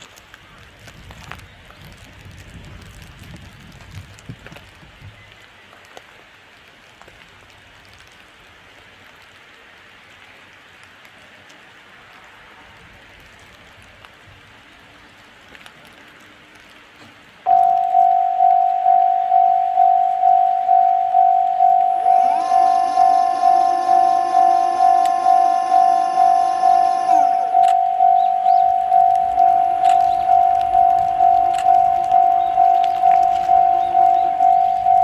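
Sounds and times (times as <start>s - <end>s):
rain falling: 0.0s - 35.0s
water dripping: 17.4s - 35.0s
low rumble: 17.5s - 35.0s.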